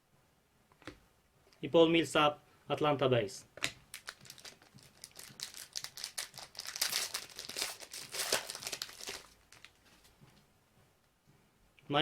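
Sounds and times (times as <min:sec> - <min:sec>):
wrapper crinkling and tearing: 0:03.9 - 0:09.8.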